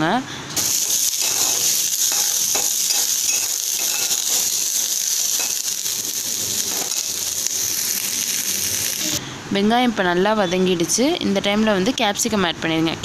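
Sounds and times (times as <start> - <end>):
onions sizzling in hot oil: 0.6 - 9.2.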